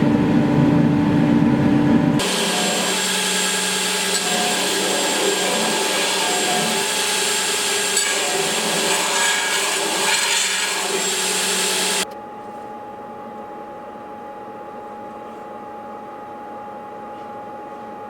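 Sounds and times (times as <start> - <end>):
electric power tool running: 2.2 - 12.0
steady single-tone hum: 10.1 - 18.0.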